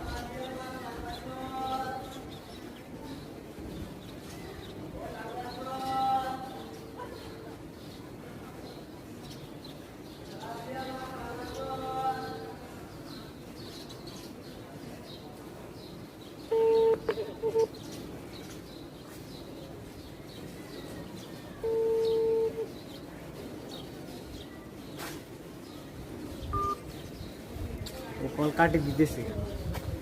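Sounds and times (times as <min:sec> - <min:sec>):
birds chirping faintly: 0:00.0 - 0:30.0
phone ringback beeps: 0:21.6 - 0:22.6, 0:26.5 - 0:26.8.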